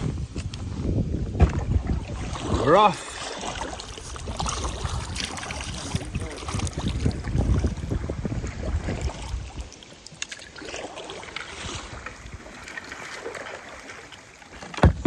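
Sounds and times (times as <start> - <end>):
wind rumble on microphone: 0.0 - 2.8, 3.5 - 9.8
water splashing from paddle strokes: 1.3 - 15.0
small knocks: 14.6 - 15.0.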